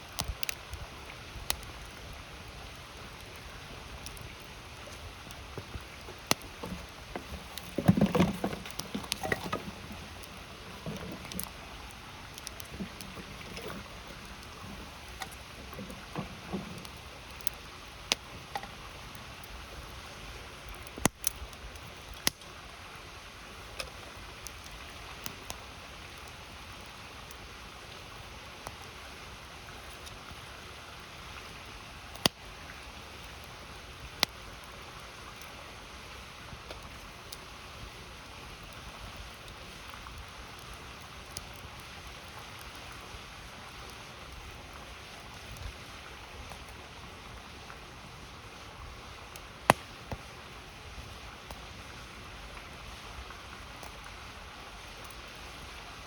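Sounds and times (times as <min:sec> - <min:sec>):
campfire crackling: 0:00.0 - 0:56.0
river rushing: 0:01.8 - 0:20.9
sharp fire pops: 0:20.8 - 0:21.4, 0:49.6 - 0:50.3.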